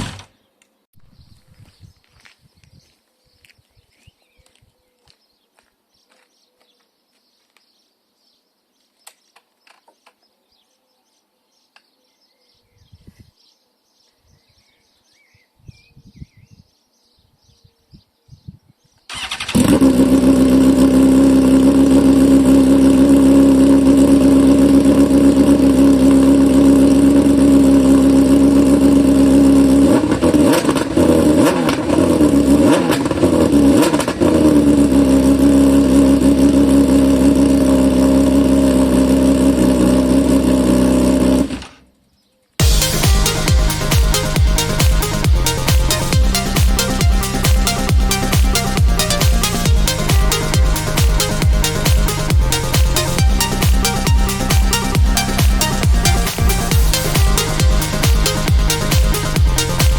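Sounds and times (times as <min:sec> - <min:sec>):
motorcycle engine idling and revving: 0:19.1 - 0:41.9, 0:42.6 - 0:59.9.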